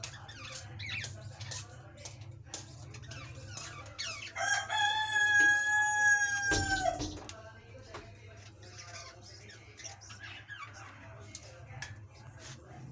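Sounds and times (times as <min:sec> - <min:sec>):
small birds chirping: 0:00.0 - 0:12.7
rooster crowing: 0:04.3 - 0:07.1.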